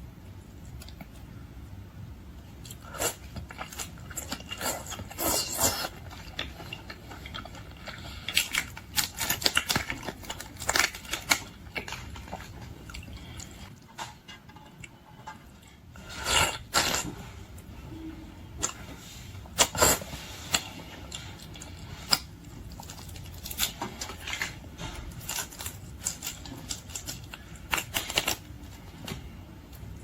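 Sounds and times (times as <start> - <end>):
chewing seafood: 2.6 - 13.8, 19.6 - 29.2.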